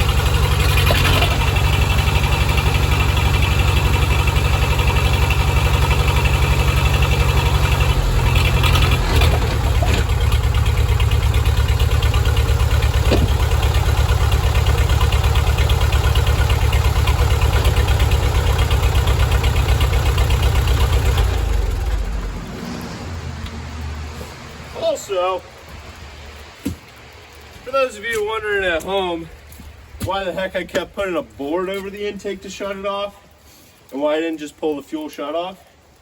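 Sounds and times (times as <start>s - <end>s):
bulldozer engine idling: 0.0s - 36.0s.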